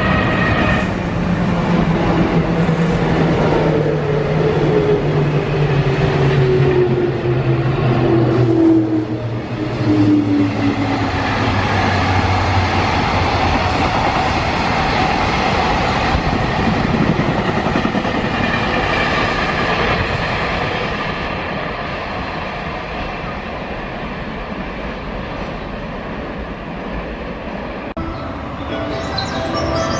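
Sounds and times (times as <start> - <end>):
train wagons rumbling and clattering: 0.0 - 29.9
locomotive whine: 27.6 - 29.9.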